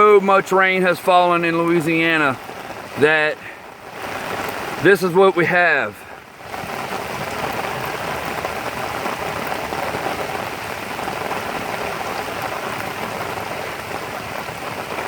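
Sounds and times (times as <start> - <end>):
rain pattering on water: 0.0 - 15.0.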